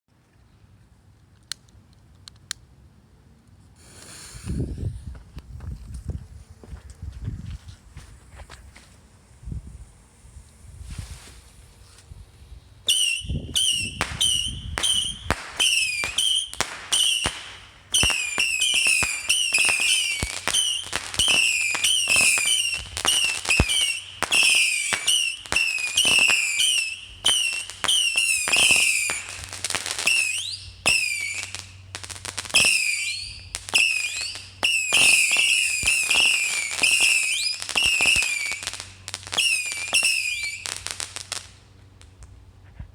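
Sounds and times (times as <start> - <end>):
whistling firework rockets: 12.8 - 41.6.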